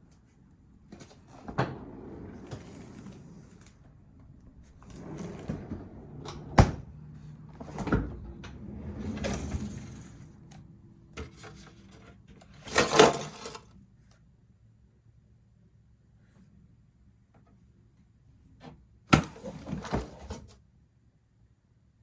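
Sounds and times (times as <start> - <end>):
clatter of refrigerator drawer: 7.6 - 10.5, 11.2 - 13.7, 19.2 - 20.6.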